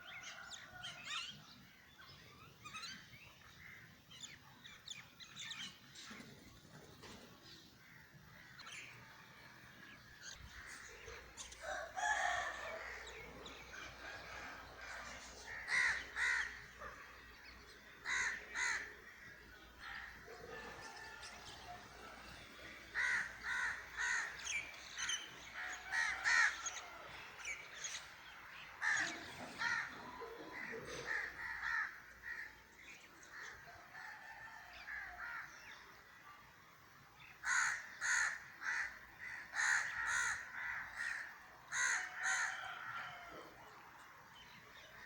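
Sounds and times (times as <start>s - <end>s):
birds calling rapidly: 10.2s - 33.6s, 37.2s - 42.9s.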